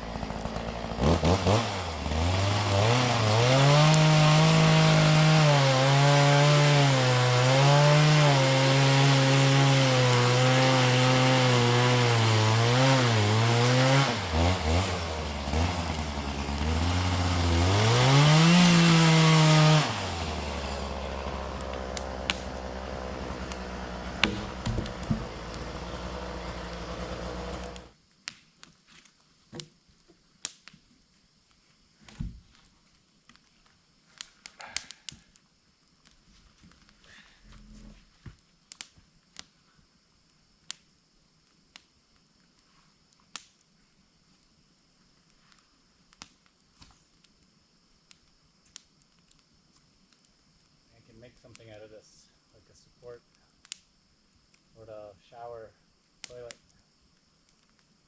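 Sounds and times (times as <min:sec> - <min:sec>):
chainsaw cutting wood: 0:00.0 - 0:28.0
knocks: 0:24.2 - 0:25.4.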